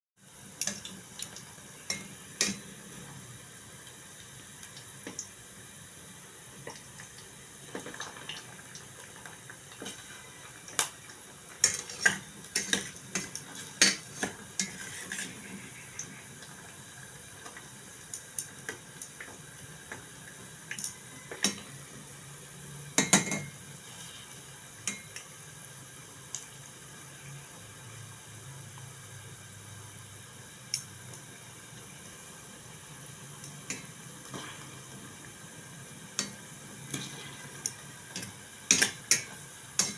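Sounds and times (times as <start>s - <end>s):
dishes and cutlery clinking: 23.0s - 23.5s.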